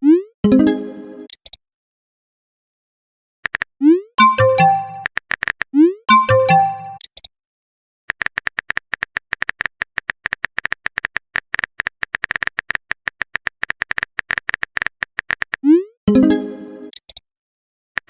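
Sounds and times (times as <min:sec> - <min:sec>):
rapid typing clicks: 0:03.4 - 0:05.7, 0:08.1 - 0:15.6
electronic jingle: 0:04.2 - 0:05.1, 0:06.1 - 0:07.0.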